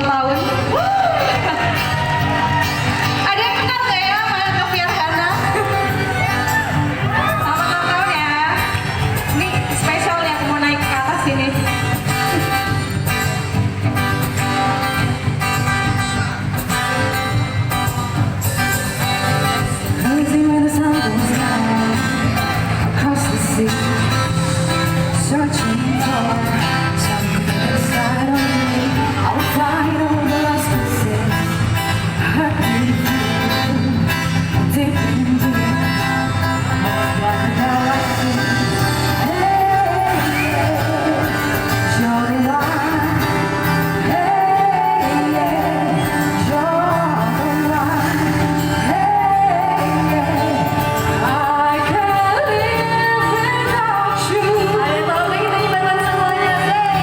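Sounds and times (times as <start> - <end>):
live band playing: 0.0 - 57.0
person singing: 18.4 - 57.0.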